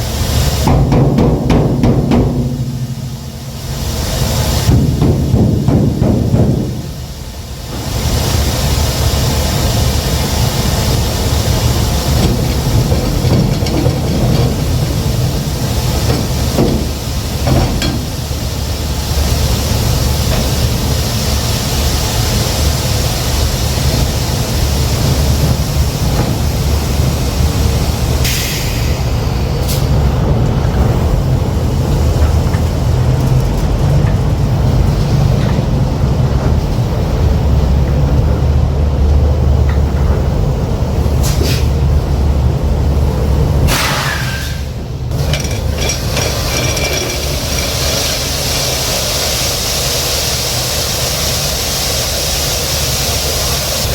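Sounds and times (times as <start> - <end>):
diesel truck engine rumbling: 0.0 - 53.9
air hiss: 2.0 - 30.0, 41.1 - 41.9, 43.6 - 46.5, 47.2 - 53.9.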